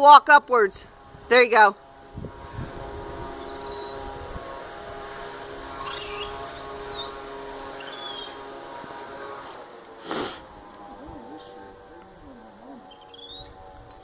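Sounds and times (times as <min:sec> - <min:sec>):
steady motor hum: 0:00.0 - 0:14.0
monkey squeaky chirps: 0:00.8 - 0:01.2, 0:05.8 - 0:07.1, 0:07.8 - 0:08.4, 0:12.8 - 0:14.0
loud hiss-like burst: 0:10.0 - 0:10.5.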